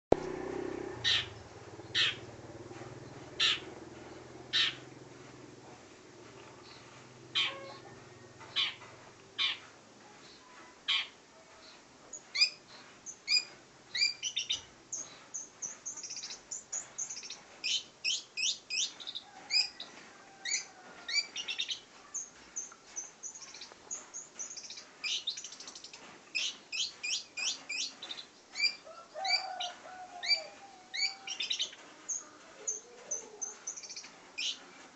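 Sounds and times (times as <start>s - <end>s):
shrike calling: 1.9s - 2.3s, 7.3s - 8.8s.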